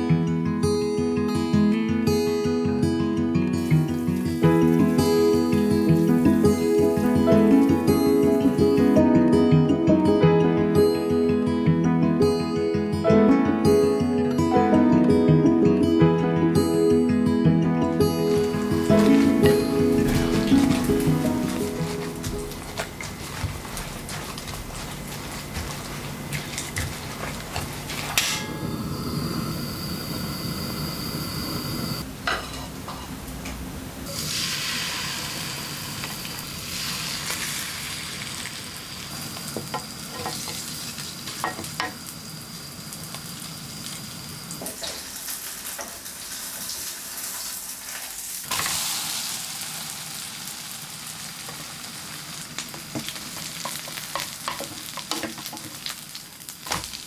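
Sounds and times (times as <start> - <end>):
food sizzling in a pan: 3.6 - 9.0, 18.0 - 32.0, 34.1 - 57.0.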